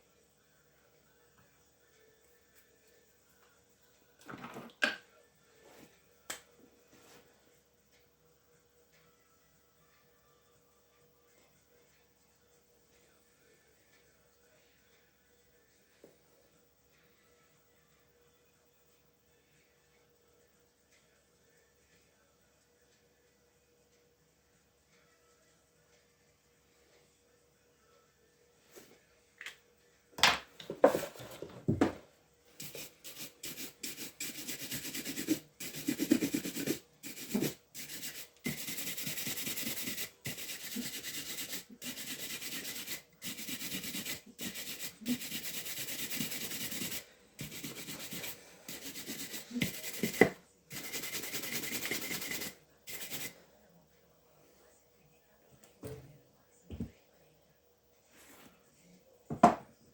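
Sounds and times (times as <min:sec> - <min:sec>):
brush scraping a shoe: 0:32.6 - 0:53.3.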